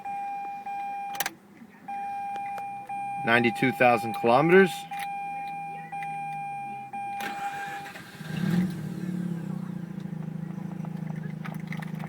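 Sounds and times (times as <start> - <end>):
starter motor cranking: 7.2 - 12.0
rotary engine idling: 7.3 - 12.0.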